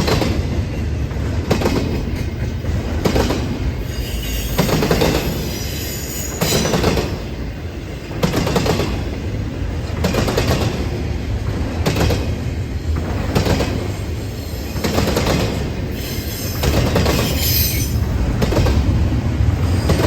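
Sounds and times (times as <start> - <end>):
freight train rumbling past: 0.0 - 20.0
high wheel squeal: 3.8 - 6.8, 16.0 - 18.1.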